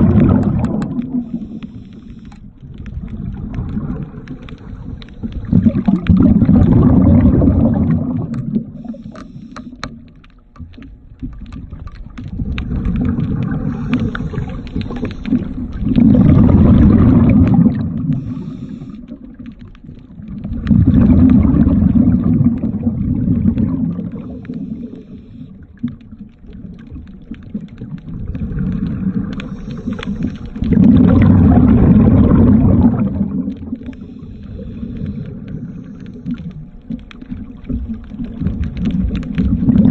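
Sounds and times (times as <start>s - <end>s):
regulator breathing underwater: 0.0s - 2.5s, 4.7s - 10.0s, 13.2s - 19.3s, 24.0s - 25.7s, 28.4s - 33.0s, 33.7s - 36.7s
exhaled bubbles: 0.0s - 39.9s.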